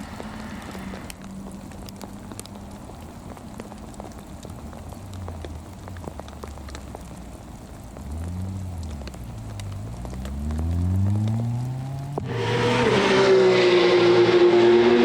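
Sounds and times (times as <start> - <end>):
rain pattering: 0.0 - 14.2
distant racing car engine: 9.9 - 15.0.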